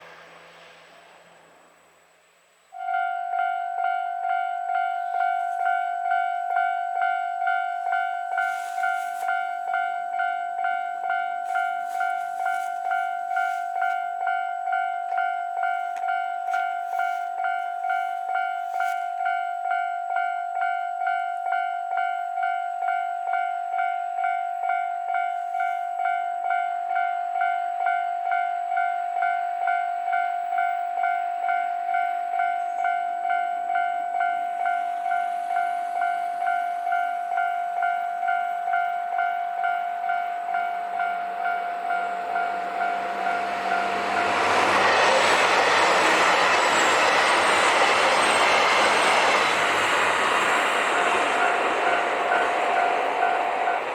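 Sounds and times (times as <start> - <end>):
level crossing alarm ringing: 2.8 - 53.9
train wheels clattering: 38.8 - 53.9.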